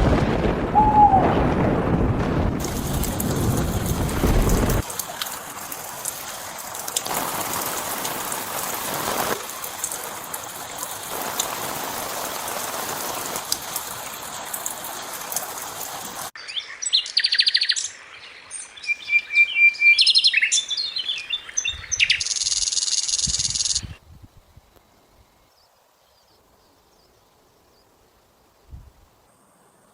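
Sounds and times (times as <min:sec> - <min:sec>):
steady hiss with crackles: 0:01.5 - 0:16.3
songbirds chirping and trilling: 0:16.4 - 0:24.0.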